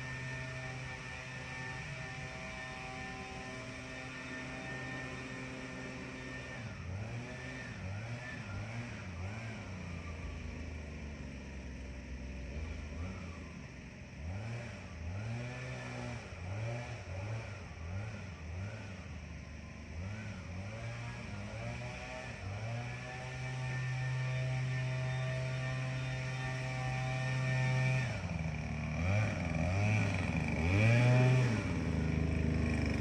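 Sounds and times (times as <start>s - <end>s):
tractor engine revving: 20.0s - 33.0s.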